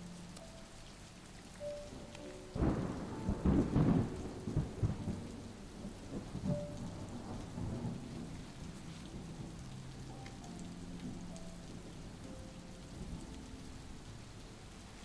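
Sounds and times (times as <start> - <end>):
steady rain: 0.0 - 15.0
thunder rumbling: 1.6 - 15.0.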